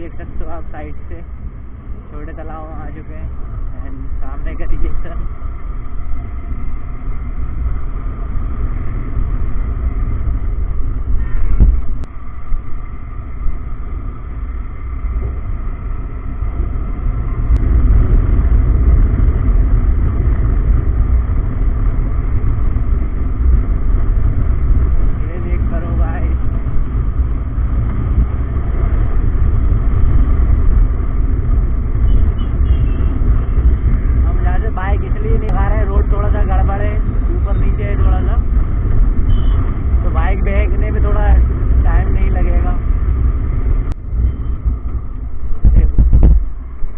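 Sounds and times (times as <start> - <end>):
wind buffeting microphone: 3.3 - 40.2, 42.7 - 46.9
loud low thump: 11.4 - 12.1.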